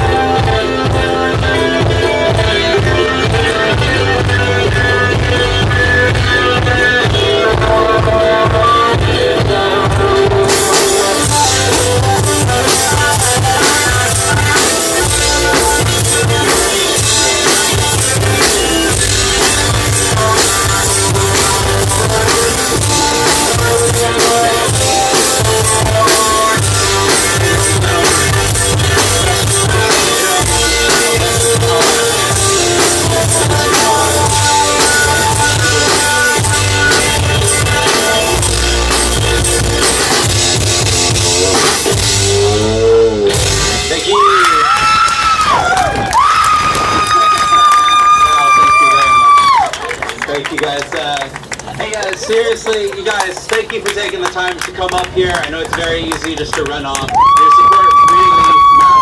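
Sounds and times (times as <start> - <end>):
strummed guitar: 0.0 - 44.2
drum kit with cymbals: 0.0 - 44.5
bass line: 0.0 - 49.7.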